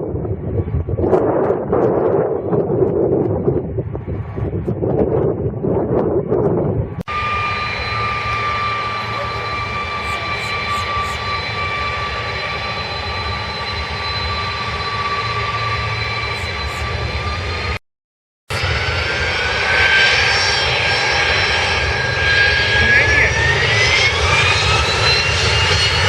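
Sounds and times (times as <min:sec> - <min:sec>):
wind noise on microphone: 0:00.0 - 0:08.1
jet engines whining: 0:00.0 - 0:17.8, 0:18.5 - 0:26.0.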